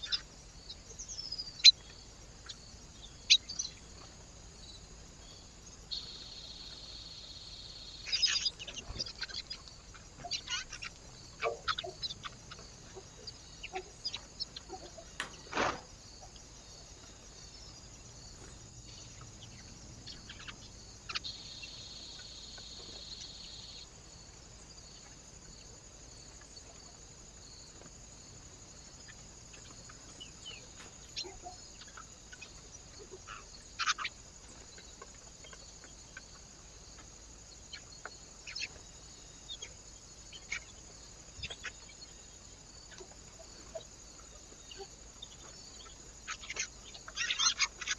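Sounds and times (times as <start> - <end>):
bird calls and clicks: 8.0 - 17.8, 29.1 - 40.8, 42.8 - 47.9.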